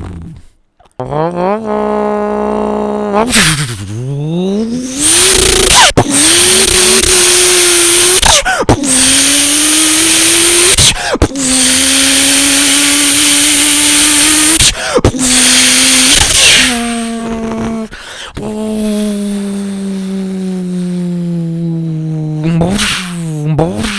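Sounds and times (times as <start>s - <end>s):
person imitating engine accelerating: 0.0s - 23.9s.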